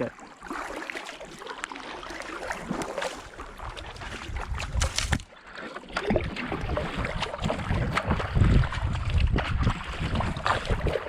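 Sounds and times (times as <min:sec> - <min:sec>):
kayak paddles splashing water: 0:00.0 - 0:11.0
low rumble of wind on microphone: 0:02.6 - 0:05.3, 0:06.0 - 0:11.0.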